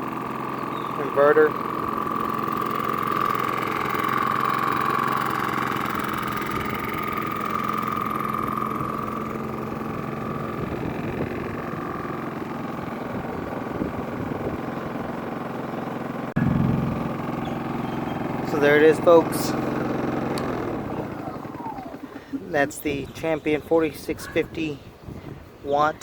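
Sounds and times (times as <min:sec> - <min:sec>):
generator engine running: 0:00.0 - 0:24.8
high whine: 0:16.4 - 0:23.1.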